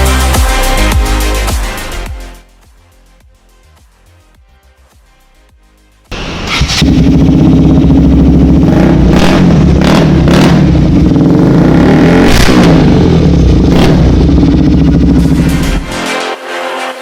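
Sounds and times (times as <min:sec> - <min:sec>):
exhaust cracks: 0:06.1 - 0:16.0
motorcycle engine revving: 0:06.1 - 0:16.2.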